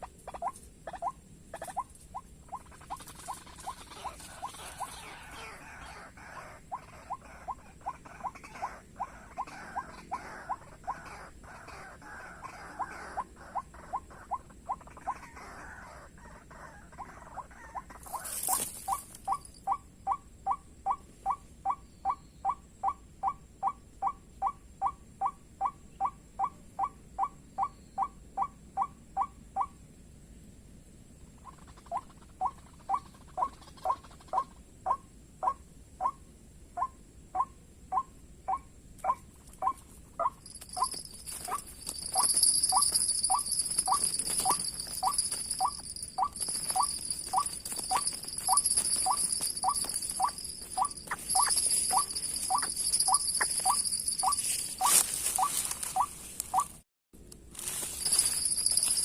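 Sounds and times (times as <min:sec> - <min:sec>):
waterhen calling squeaky notes: 0:00.0 - 0:11.3, 0:17.6 - 0:19.8, 0:36.8 - 0:56.8.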